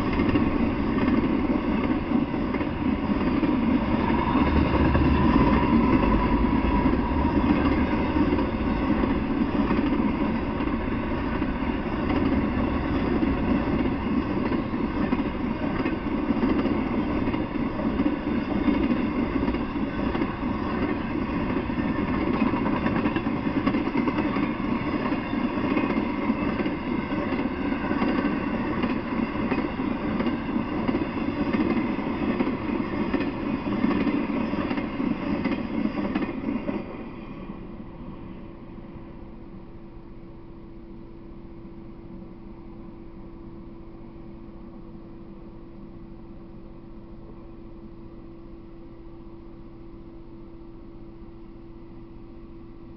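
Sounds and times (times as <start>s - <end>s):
freight train wheels on rails: 0.0s - 40.4s.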